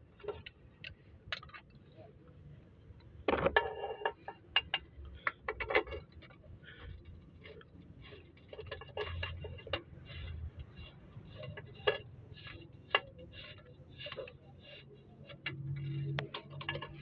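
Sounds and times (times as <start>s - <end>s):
hand tools clicking on metal: 4.2s - 17.0s.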